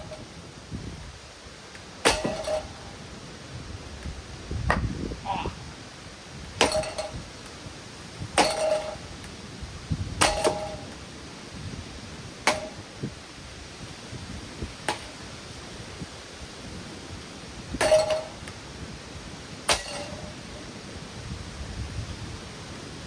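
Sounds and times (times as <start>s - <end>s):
blows on metal ceiling fan: 0.0s - 23.0s.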